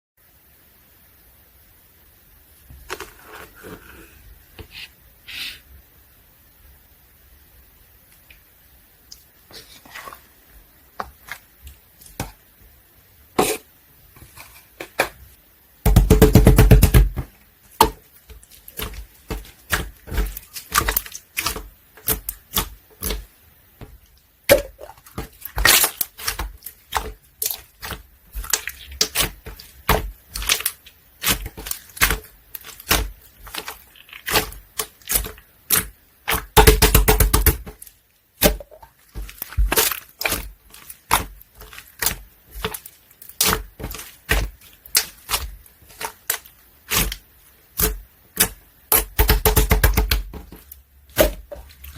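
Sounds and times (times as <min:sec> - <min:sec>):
slime squelching: 0:09.0 - 0:12.6, 0:17.2 - 0:51.9
slime crackling and popping: 0:17.9 - 0:23.3, 0:24.4 - 0:51.9.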